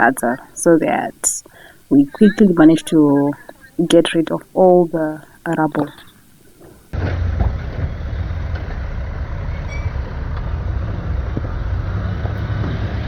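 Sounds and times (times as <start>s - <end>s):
truck diesel engine running: 7.0s - 13.0s.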